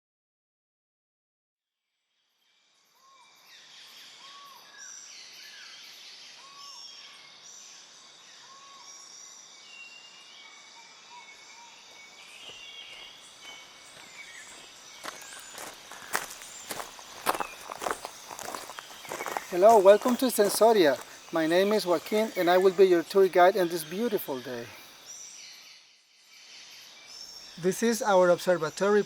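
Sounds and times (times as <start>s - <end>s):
birds calling: 8.4s - 26.0s, 26.7s - 29.0s
sharp footsteps: 12.4s - 23.1s.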